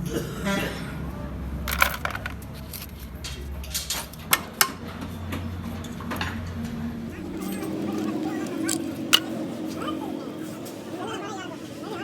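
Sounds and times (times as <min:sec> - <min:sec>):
metal tools clinking: 0:01.7 - 0:04.3, 0:07.3 - 0:09.8.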